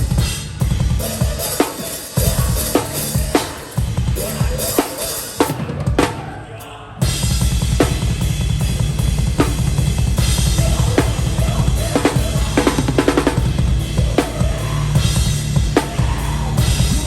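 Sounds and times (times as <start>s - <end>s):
fast bass drum pulse: 7.0s - 17.0s.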